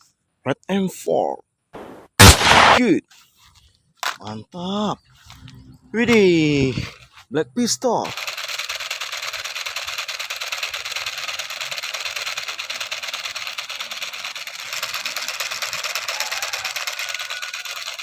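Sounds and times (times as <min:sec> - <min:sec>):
toy pistol electronic rattle: 0:08.0 - 0:18.0.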